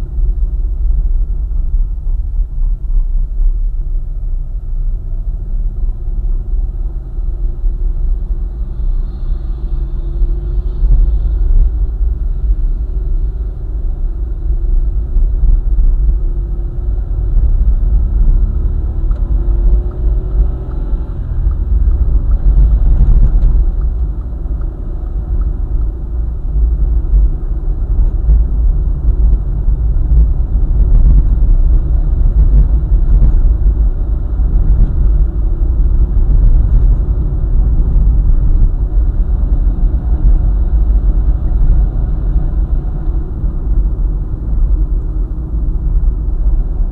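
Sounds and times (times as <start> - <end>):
faint engine tone: 0.0 - 17.3
car road and engine rumble: 0.0 - 46.9.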